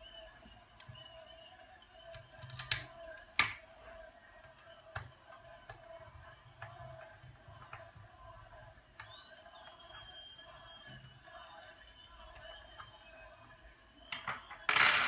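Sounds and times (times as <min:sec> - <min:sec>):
plastic parts clicking and tapping: 0:02.1 - 0:03.7, 0:14.1 - 0:14.9.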